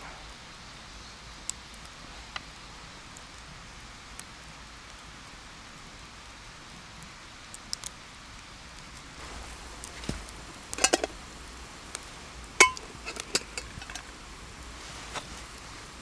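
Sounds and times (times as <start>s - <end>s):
cookware and utensils clinking: 9.2s - 15.9s.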